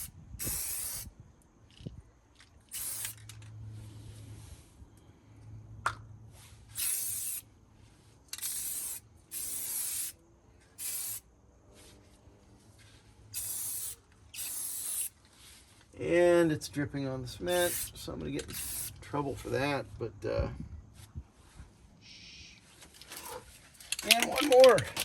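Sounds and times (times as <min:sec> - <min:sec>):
spray paint can spraying: 0:00.0 - 0:01.1, 0:02.6 - 0:03.4, 0:06.7 - 0:07.5, 0:08.3 - 0:10.2, 0:10.8 - 0:11.2, 0:13.3 - 0:15.2, 0:17.5 - 0:19.0.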